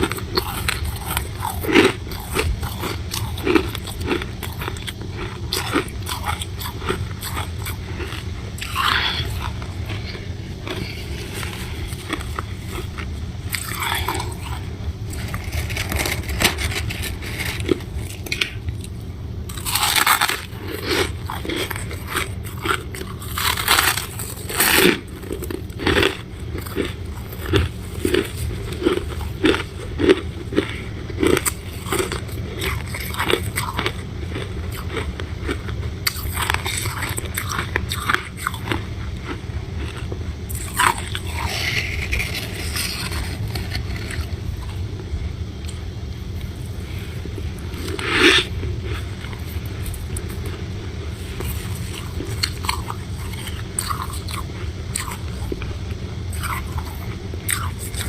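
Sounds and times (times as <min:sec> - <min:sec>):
crunching bites of frost: 0:00.0 - 0:44.8
chewing: 0:00.0 - 0:58.0
steady low hum: 0:00.0 - 0:58.0.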